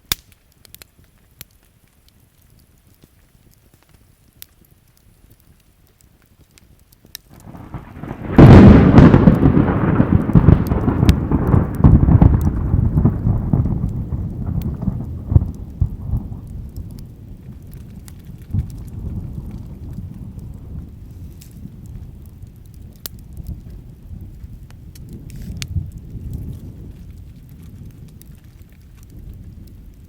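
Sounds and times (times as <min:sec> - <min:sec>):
campfire crackling: 0:00.0 - 0:30.0
thunder rumbling and cracking: 0:07.3 - 0:30.0.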